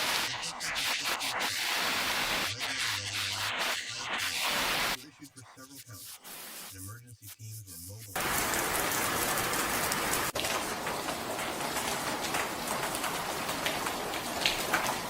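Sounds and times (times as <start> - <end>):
heavy rain: 0.0 - 5.0, 8.2 - 15.0.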